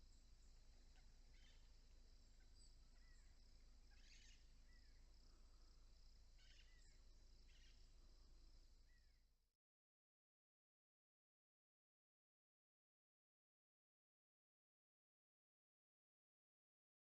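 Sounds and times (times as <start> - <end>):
crickets trilling: 0.0 - 9.0
short bird chirps: 1.0 - 1.7, 2.6 - 5.0, 6.4 - 7.8.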